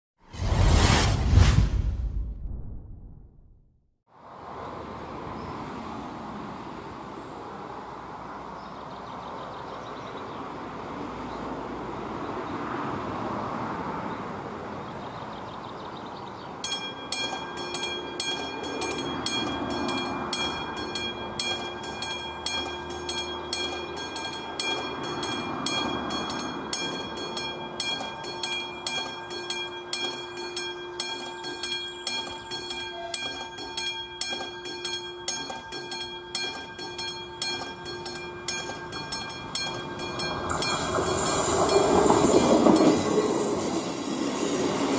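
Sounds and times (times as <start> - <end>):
car passing: 10.5 - 14.8, 18.5 - 27.8
level crossing warning bell: 16.5 - 44.9.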